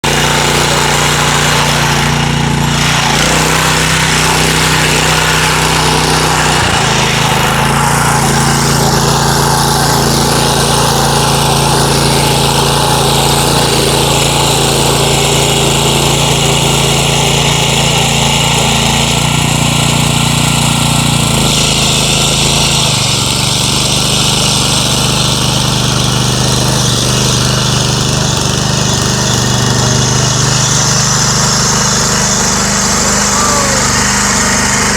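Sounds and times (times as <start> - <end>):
petrol engine running loudly: 0.0 - 34.9.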